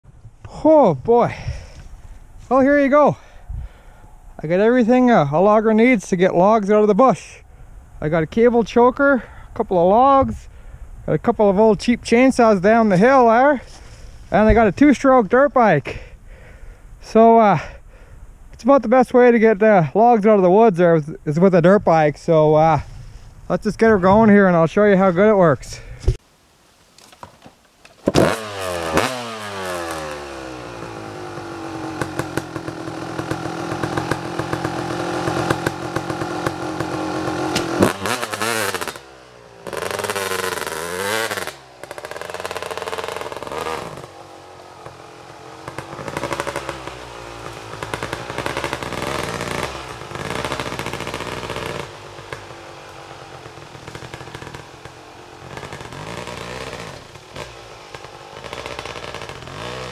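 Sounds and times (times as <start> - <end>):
dirt bike engine revving: 28.0 - 59.9.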